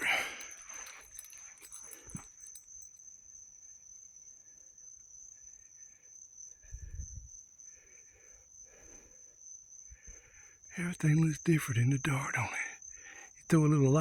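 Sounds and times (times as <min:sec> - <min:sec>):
high-pitched insect trill: 0:00.0 - 0:14.0.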